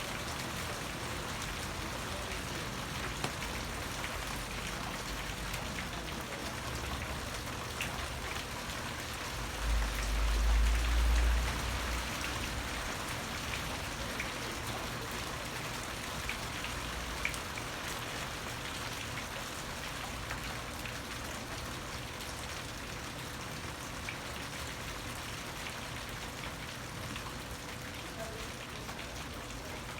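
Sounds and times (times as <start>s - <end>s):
rain falling: 0.0s - 29.9s
raindrop ticks: 1.4s - 15.2s.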